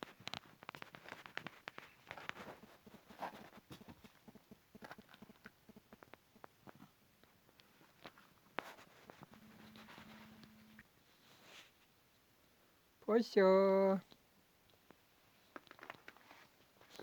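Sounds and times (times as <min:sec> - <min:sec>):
cat chewing and crunching: 0:00.0 - 0:10.8.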